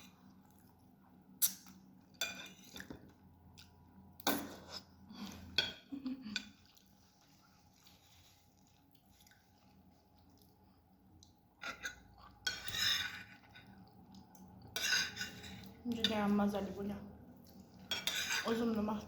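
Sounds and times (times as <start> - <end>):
cutlery clinking and scraping dish: 2.2 - 3.0, 11.6 - 13.7, 14.8 - 15.7, 17.9 - 18.7.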